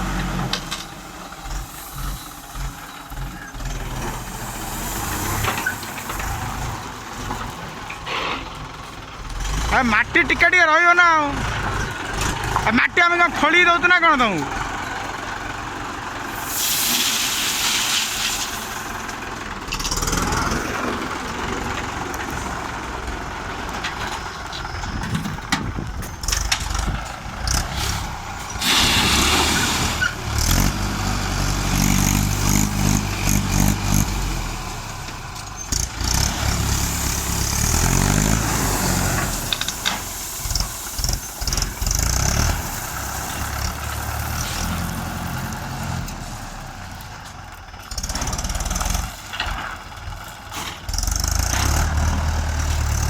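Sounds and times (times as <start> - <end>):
tractor diesel engine under load: 0.0 - 53.0
short bursts of hiss: 16.3 - 18.9, 27.8 - 30.2, 36.8 - 43.5
blade pushing soil: 26.1 - 49.7.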